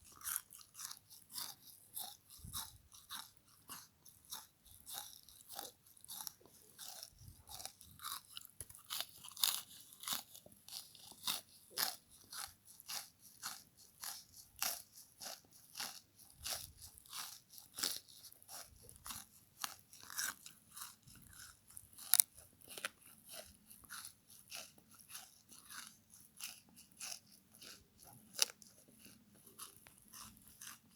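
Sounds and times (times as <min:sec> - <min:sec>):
chewing icy crunches: 0:00.0 - 0:30.9.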